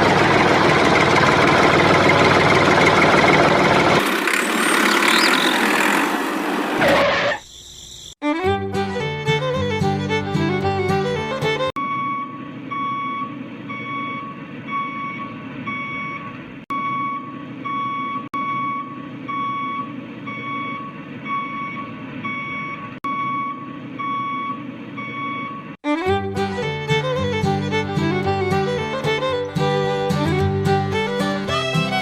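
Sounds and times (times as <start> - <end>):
low engine rumble: 0.0 - 6.3, 25.9 - 32.0
reversing alarm beeping: 11.8 - 25.8.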